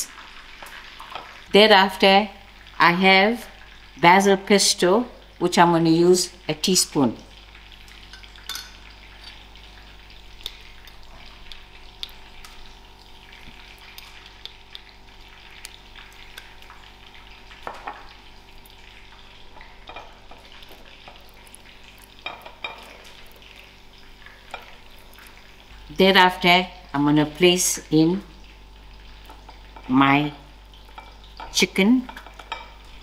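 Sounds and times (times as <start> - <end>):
chicken sizzling in hot oil: 0.0 - 33.0
spoon tapping glass jar and plate: 8.1 - 8.8.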